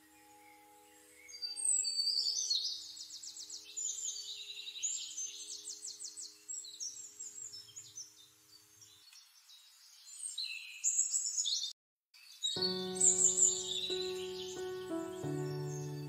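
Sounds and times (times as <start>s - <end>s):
birds chirping and singing: 12.4s - 16.0s.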